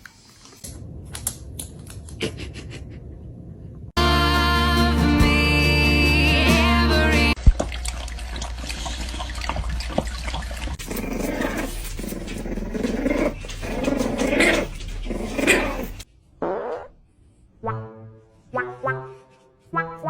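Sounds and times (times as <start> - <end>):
dog growling: 9.1 - 16.0.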